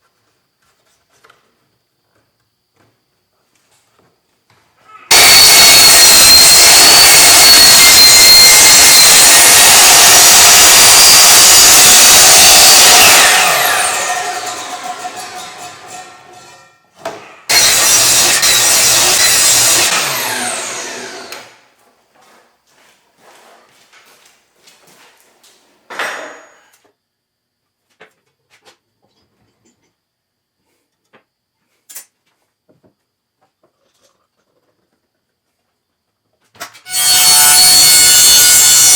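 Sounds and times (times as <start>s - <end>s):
power tool motor spinning down: 5.1s - 15.7s, 17.5s - 21.6s
loud scraping rush: 5.1s - 16.6s.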